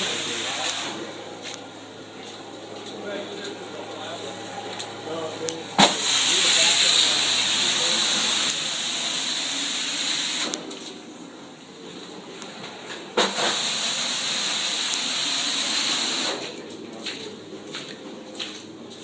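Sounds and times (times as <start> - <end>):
vacuum extraction wand hissing: 0.0 - 1.1, 5.8 - 10.6, 13.2 - 16.5.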